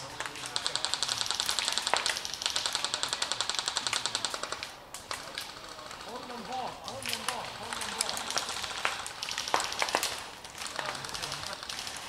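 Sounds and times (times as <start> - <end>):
airsoft gun full-auto burst: 0.4 - 4.7, 7.9 - 12.0.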